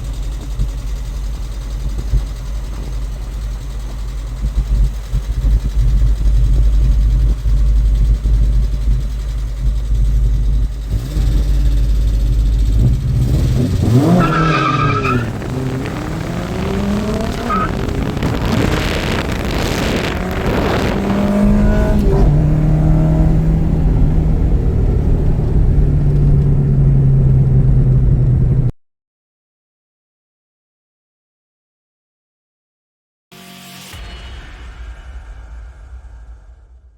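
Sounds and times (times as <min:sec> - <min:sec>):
car engines running: 0:00.0 - 0:28.7
car revving and passing: 0:10.8 - 0:28.7.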